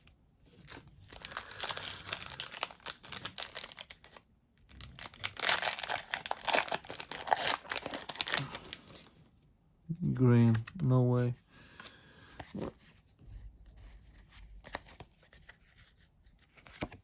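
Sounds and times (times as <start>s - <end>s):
foil wrapper tearing and crinkling: 1.1s - 8.9s.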